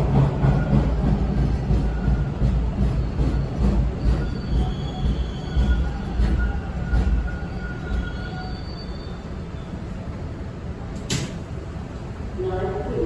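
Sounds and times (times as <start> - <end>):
subway car rumbling: 0.0 - 13.0
faint wheel squeal: 3.3 - 9.9
sharp click: 11.0 - 11.4.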